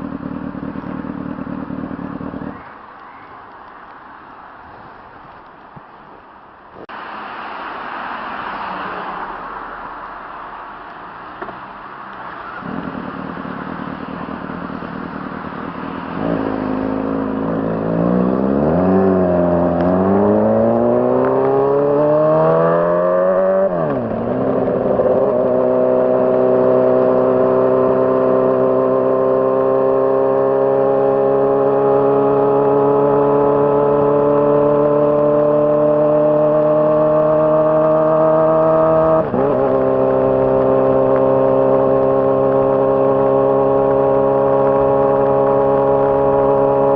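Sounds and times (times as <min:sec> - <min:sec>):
motorcycle engine revving: 0:00.0 - 0:02.7, 0:12.3 - 0:46.9.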